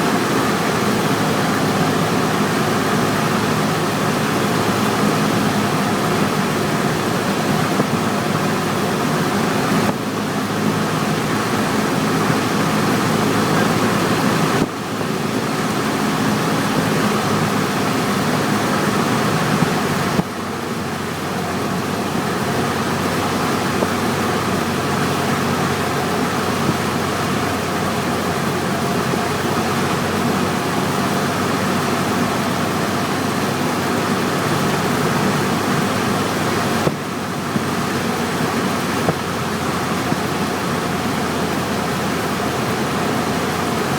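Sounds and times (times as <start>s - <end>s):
propeller plane engine droning: 0.0s - 43.9s
rushing airflow: 0.0s - 43.9s.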